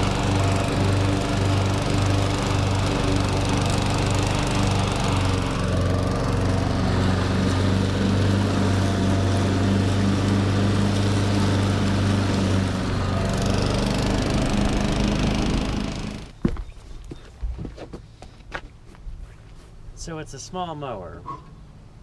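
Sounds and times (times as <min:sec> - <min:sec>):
lawn tractor engine running: 0:00.0 - 0:16.4.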